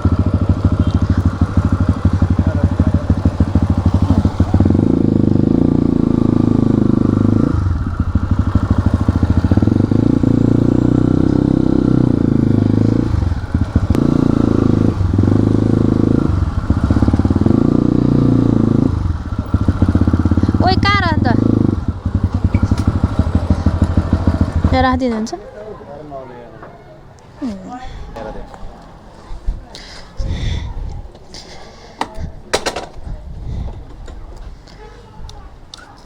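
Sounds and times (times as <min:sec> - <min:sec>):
motorcycle engine running: 0:00.0 - 0:25.4.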